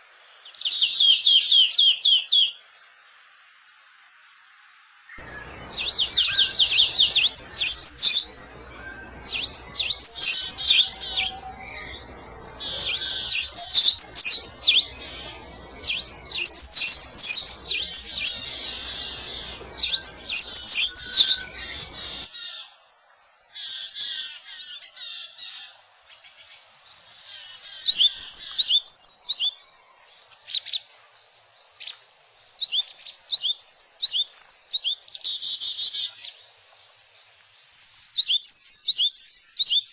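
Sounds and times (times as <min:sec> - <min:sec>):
low background hiss: 0:00.0 - 0:24.0
songbirds chirping: 0:00.0 - 0:39.9.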